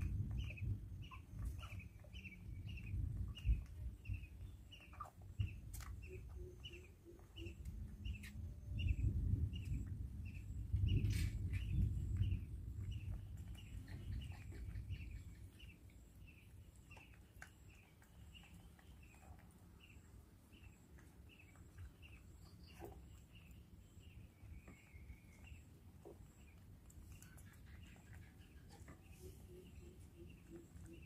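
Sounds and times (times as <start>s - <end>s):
low rumble: 0.0s - 17.0s
small bird chirping: 0.0s - 31.0s.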